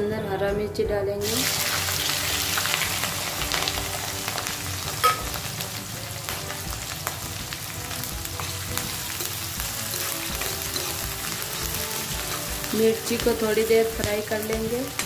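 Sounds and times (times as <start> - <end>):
chillies sizzling in hot oil: 1.2 - 15.0
steel spoon stirring: 8.4 - 13.0.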